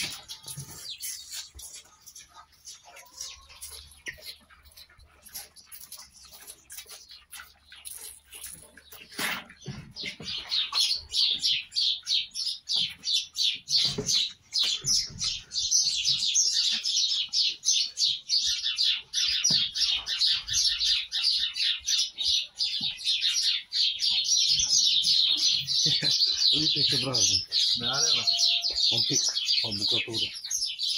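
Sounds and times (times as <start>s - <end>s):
bird chirping rapidly: 9.6s - 30.9s.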